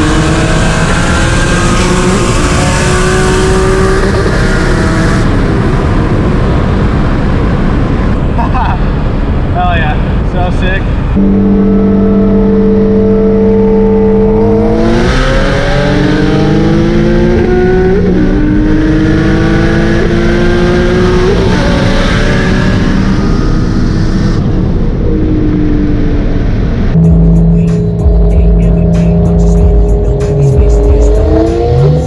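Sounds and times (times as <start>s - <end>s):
car engine accelerating: 0.0s - 8.4s, 10.9s - 32.0s
turbo rush: 24.9s - 32.0s.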